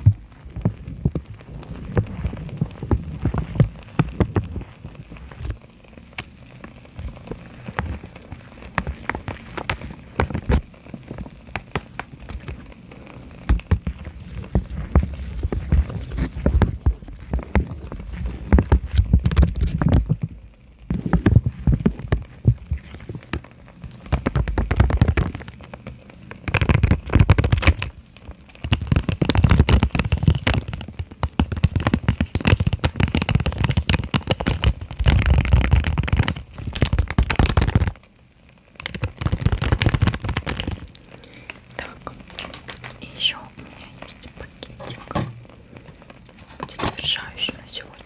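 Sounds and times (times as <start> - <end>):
fingers tapping and scratching boxes: 0.0 - 5.6, 7.0 - 12.6, 13.5 - 20.3, 20.9 - 25.8, 26.4 - 28.0, 28.6 - 38.0, 38.8 - 40.9.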